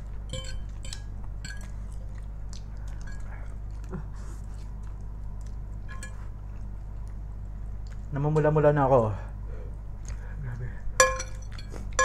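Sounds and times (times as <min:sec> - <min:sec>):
people chewing noodles: 0:00.0 - 0:08.5, 0:09.2 - 0:12.0
forks clicking against plates: 0:00.3 - 0:01.8, 0:11.0 - 0:12.0.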